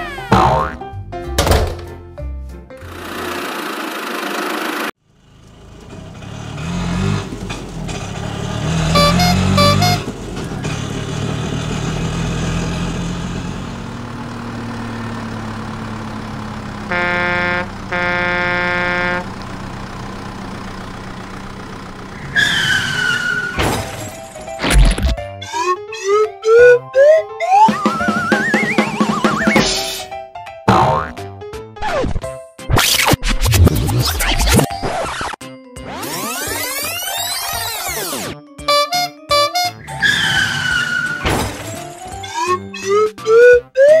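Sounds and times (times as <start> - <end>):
horn honking: 8.7 - 10.2, 16.8 - 19.6, 38.6 - 41.2
cartoon engine running: 8.9 - 10.1, 16.9 - 19.2, 35.9 - 39.8.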